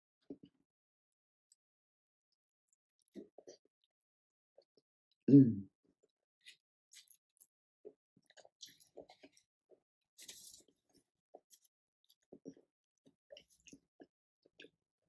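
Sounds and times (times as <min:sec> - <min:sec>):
chewing with wet clicks: 0:08.2 - 0:09.5, 0:10.2 - 0:14.8.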